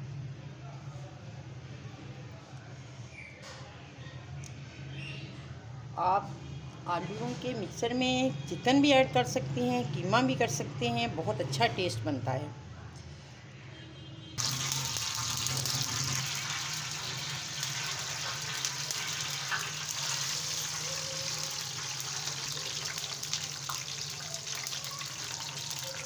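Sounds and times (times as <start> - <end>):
flatbread sizzling in hot oil: 14.4 - 26.0.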